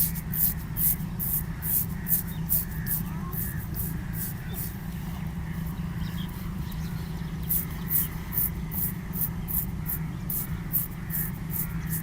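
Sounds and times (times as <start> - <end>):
razor scraping hair: 0.0 - 4.8, 7.5 - 12.0
steady low hum: 0.0 - 12.0.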